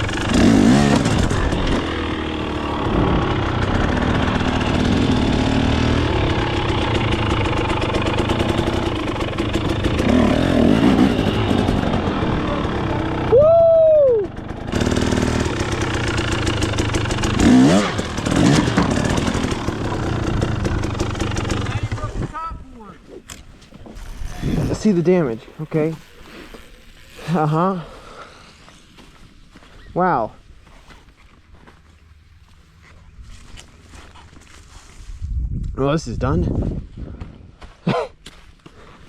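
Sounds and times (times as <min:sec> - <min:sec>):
dirt bike engine revving: 0:00.0 - 0:22.4, 0:23.3 - 0:28.6.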